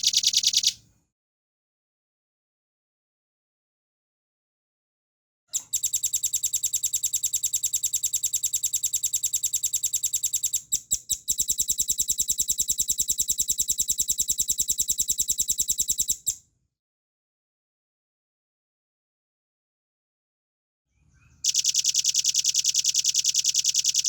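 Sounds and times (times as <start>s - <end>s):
bird singing fast high trill: 0.0s - 0.7s.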